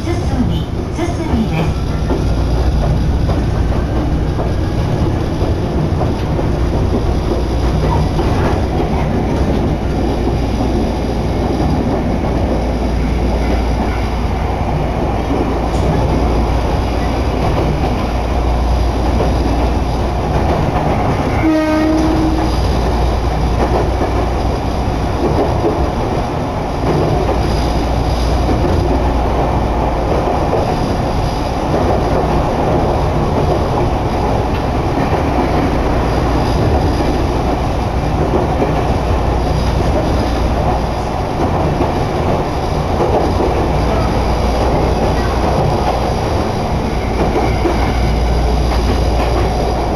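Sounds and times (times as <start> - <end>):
train running noise inside car: 0.0 - 49.9
train horn: 21.3 - 22.6.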